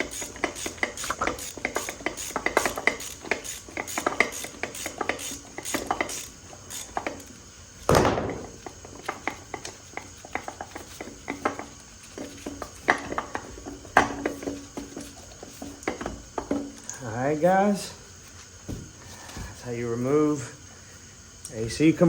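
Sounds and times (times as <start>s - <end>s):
tools and metal parts clinking: 0.0s - 7.3s.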